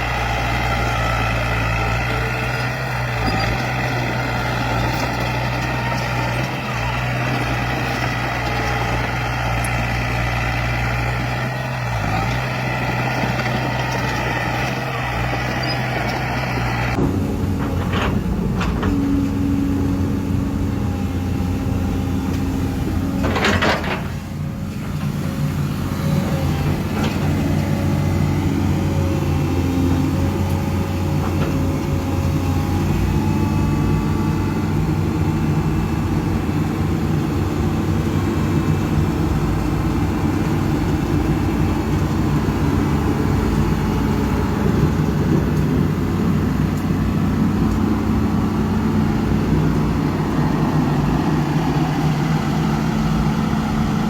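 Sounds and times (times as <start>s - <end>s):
diesel machinery running: 0.0s - 54.0s.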